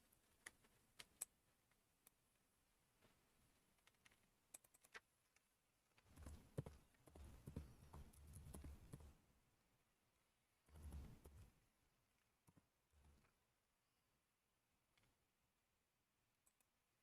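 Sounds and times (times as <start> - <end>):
keyboard typing: 3.8 - 5.4, 6.0 - 9.2.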